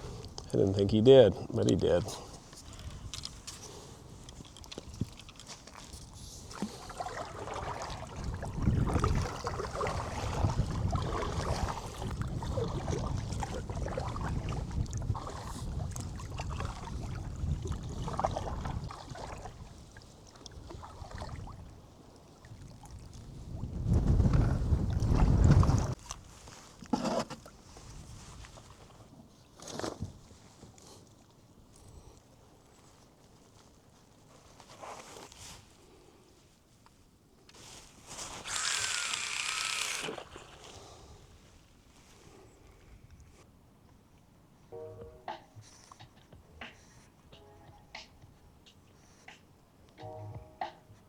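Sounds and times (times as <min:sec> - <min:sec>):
water sloshing against kayak hull: 0:02.4 - 0:30.7.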